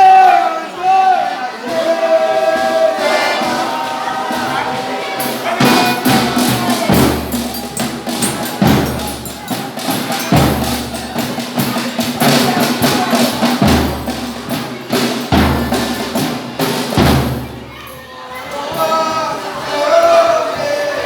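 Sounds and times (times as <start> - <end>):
folk ensemble playing: 0.0 - 18.7
rattling percussion: 1.6 - 18.1
deep drum beats: 1.7 - 17.7.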